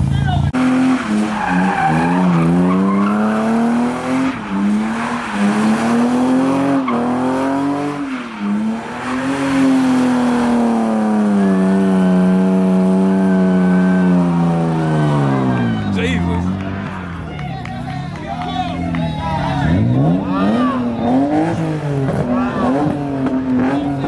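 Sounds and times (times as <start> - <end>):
tire squeal: 0.1 - 24.0
engine revving at high revs: 0.6 - 16.7, 19.6 - 24.0.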